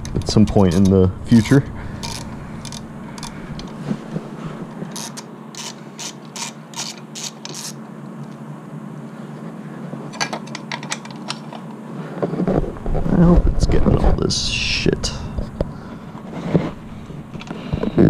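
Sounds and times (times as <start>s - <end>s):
socket ratchet clicking: 0.1s - 3.7s, 4.9s - 7.8s.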